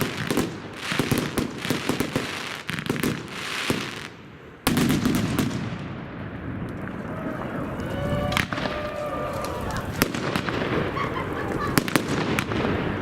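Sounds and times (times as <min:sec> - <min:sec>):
fireworks crackling bangs: 0:00.0 - 0:13.0
rumble of distant explosions: 0:04.4 - 0:13.0.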